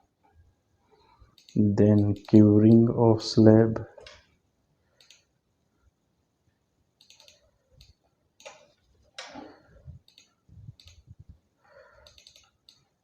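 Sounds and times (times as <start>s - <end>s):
mouse clicks: 5.0s - 5.3s, 7.0s - 9.4s, 10.1s - 11.0s, 12.0s - 12.9s.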